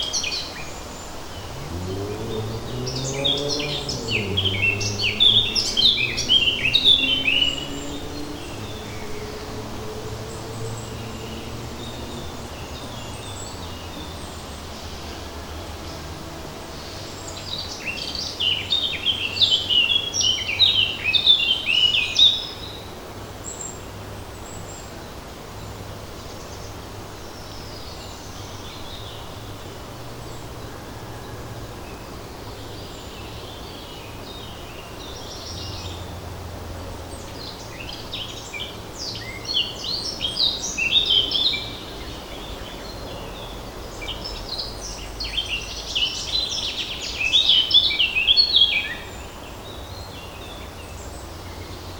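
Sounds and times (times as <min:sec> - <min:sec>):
faint forest background hiss: 0:00.0 - 0:51.9
songbird chirping: 0:00.0 - 0:51.9.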